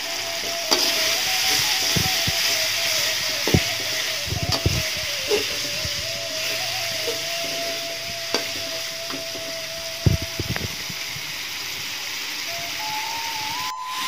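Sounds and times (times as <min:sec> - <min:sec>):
paste sizzling in hot oil: 0:00.0 - 0:14.0
metal spatula scraping a wok: 0:00.4 - 0:09.9.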